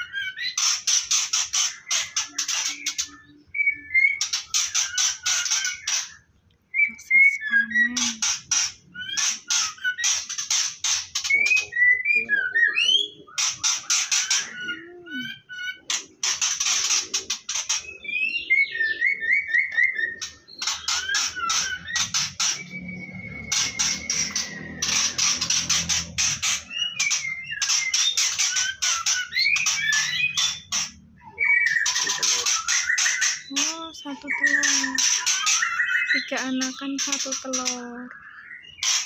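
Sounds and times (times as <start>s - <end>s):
bird harsh rasping chatter: 0.0s - 39.0s
bird whistled gliding notes: 17.7s - 36.4s.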